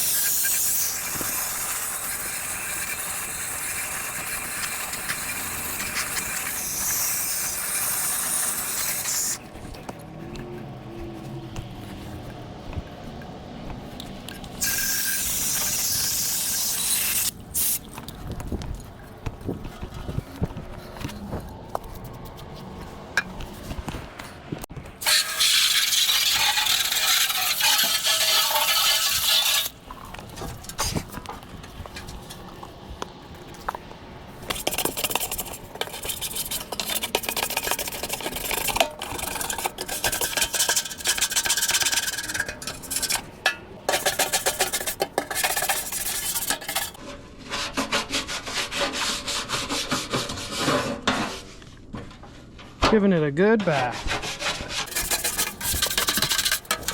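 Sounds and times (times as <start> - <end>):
hissing spray bursts: 0.0 - 9.4, 14.6 - 17.8, 25.0 - 29.7
scraping and rubbing: 0.0 - 17.7, 18.5 - 32.6, 34.4 - 52.8, 53.6 - 56.9.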